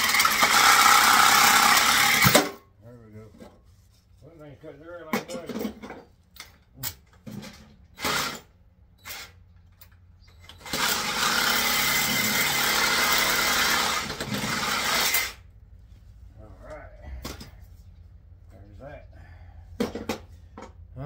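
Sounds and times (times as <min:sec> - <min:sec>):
handheld power tool running: 0:00.0 - 0:02.5, 0:08.0 - 0:08.5, 0:10.5 - 0:15.4.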